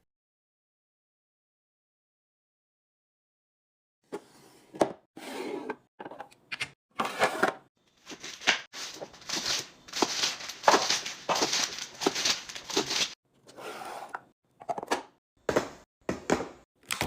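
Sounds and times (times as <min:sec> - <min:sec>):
containers and packaging handled: 0:06.0 - 0:15.1.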